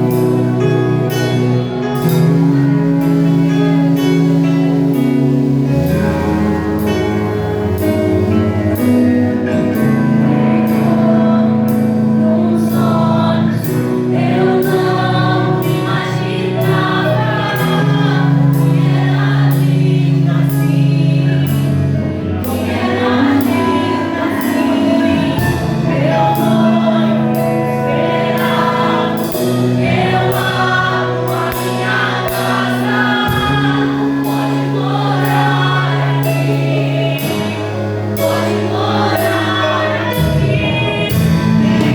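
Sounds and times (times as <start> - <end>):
sustained chords: 0.0 - 41.9
voices singing praise song: 10.1 - 41.9.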